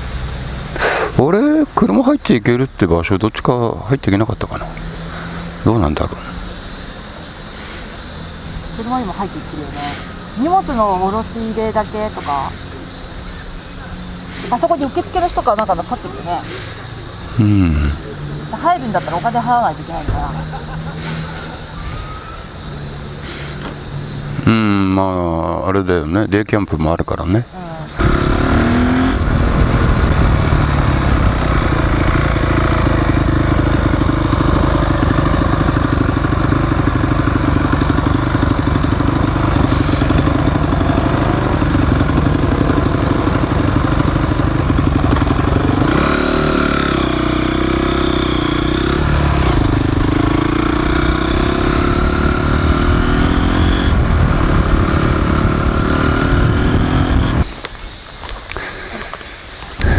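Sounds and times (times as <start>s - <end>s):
motorcycle engine running: 3.2s - 24.9s, 27.8s - 57.5s.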